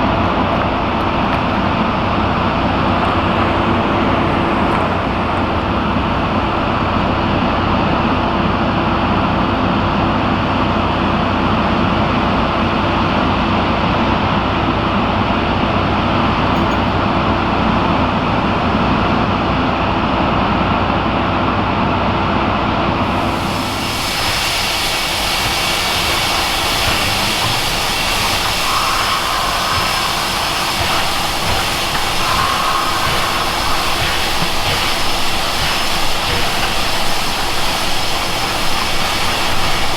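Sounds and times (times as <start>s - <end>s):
steam train rumbling: 0.0s - 39.9s
steady hissing: 23.1s - 39.9s.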